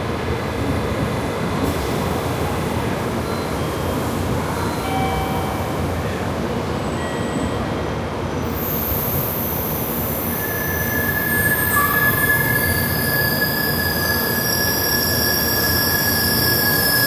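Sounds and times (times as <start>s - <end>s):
train rumbling: 0.0s - 17.0s
train brake squeal: 3.2s - 6.1s, 8.5s - 17.0s
thin high whine: 9.0s - 17.0s.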